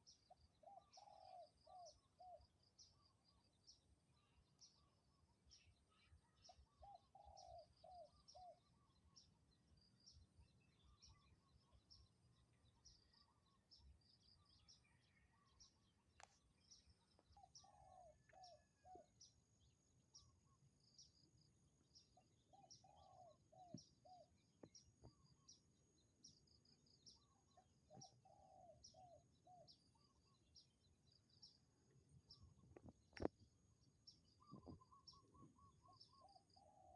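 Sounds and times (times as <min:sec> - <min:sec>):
small birds chirping: 0:00.0 - 0:36.9
dove cooing softly: 0:00.6 - 0:02.5, 0:06.7 - 0:08.7, 0:17.4 - 0:19.2, 0:22.5 - 0:24.3, 0:27.2 - 0:30.1, 0:34.4 - 0:36.9.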